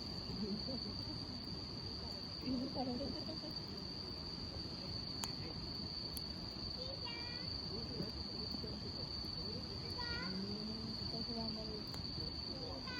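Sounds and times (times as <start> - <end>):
campfire crackling: 0.0 - 12.9
high-pitched insect trill: 0.0 - 12.9
fire popping: 5.0 - 7.2.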